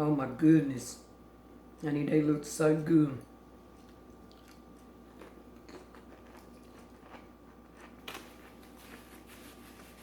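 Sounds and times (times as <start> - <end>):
chewing: 3.8 - 9.2.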